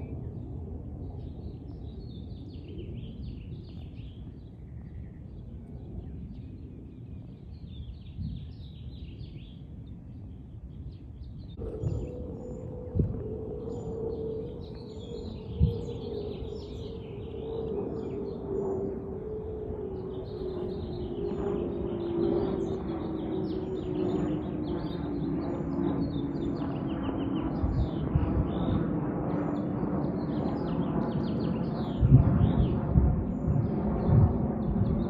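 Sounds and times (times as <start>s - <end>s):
aircraft engine drone overhead: 0.0s - 35.0s
birds chirping: 10.3s - 35.0s.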